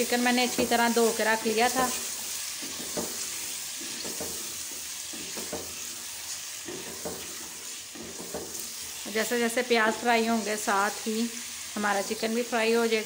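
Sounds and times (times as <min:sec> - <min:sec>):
chicken sizzling in oil: 0:00.0 - 0:13.0
wooden spoon scraping pot: 0:02.0 - 0:06.0, 0:06.6 - 0:08.9.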